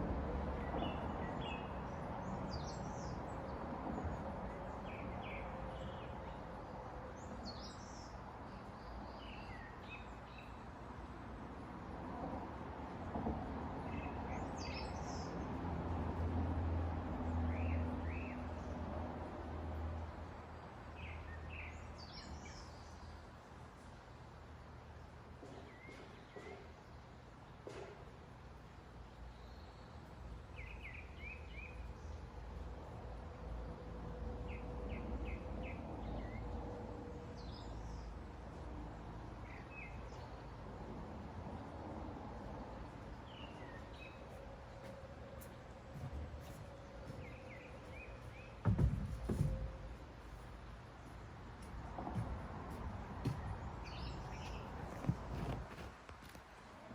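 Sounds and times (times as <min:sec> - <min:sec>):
road traffic rumble: 0:00.0 - 0:22.6, 0:29.9 - 0:56.9
songbirds chirping: 0:00.0 - 0:56.9
small birds chirping: 0:42.8 - 0:55.9.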